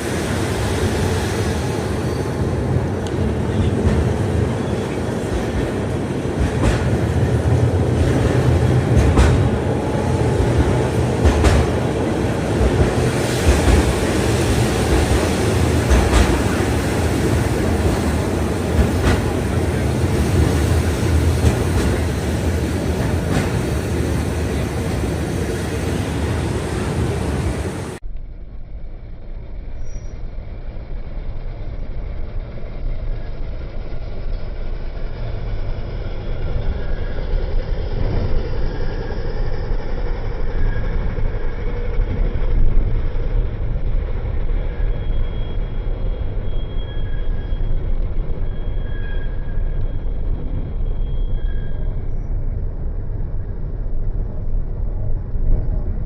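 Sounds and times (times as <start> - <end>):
tram wheels rumbling on rails: 0.0 - 56.0
high wheel squeal: 29.7 - 30.5, 32.8 - 42.4, 44.1 - 52.8.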